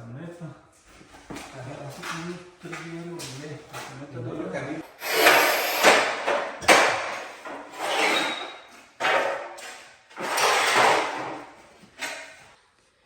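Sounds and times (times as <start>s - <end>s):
hand tool scraping tiled floor: 4.8s - 12.6s.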